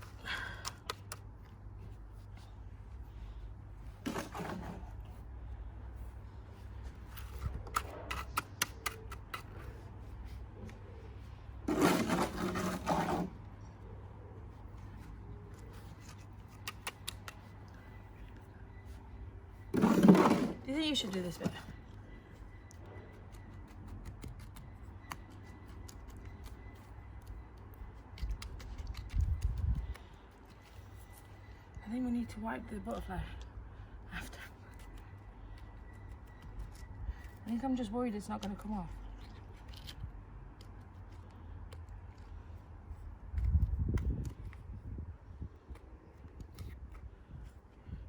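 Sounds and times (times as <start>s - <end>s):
small clicks and scrapes: 7.0s - 10.8s, 14.8s - 18.4s, 22.5s - 31.5s, 38.2s - 42.6s, 45.6s - 47.6s
harsh scrape: 11.6s - 13.4s, 19.7s - 20.7s.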